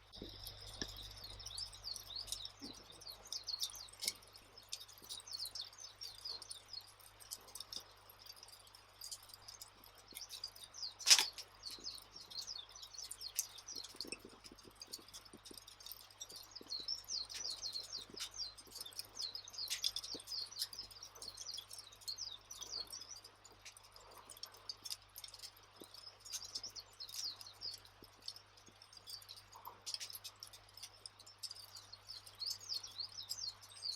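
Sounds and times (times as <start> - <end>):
campfire crackling: 0.0 - 33.9
sharp pops and snaps: 0.0 - 33.9.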